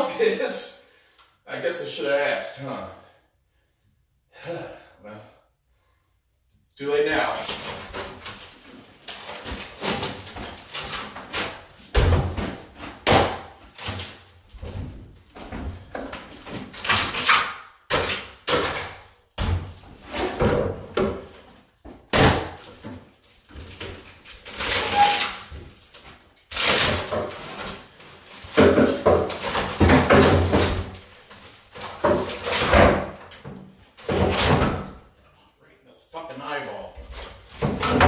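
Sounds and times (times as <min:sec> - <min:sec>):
knocks and bangs of wood: 0:07.5 - 0:25.7, 0:26.6 - 0:35.0, 0:37.0 - 0:38.0.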